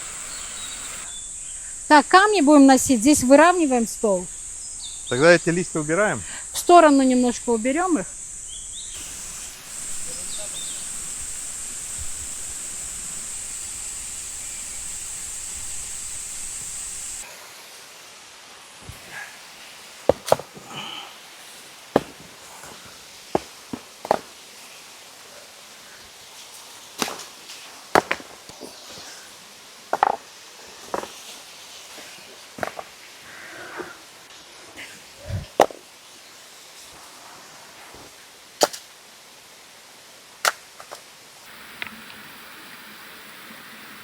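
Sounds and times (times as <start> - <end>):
steady hiss: 0.0 - 44.0
dull thud: 20.1 - 20.5, 22.0 - 22.3
hard objects knocking: 20.1 - 20.5
sharp cracks of striking: 22.0 - 22.3.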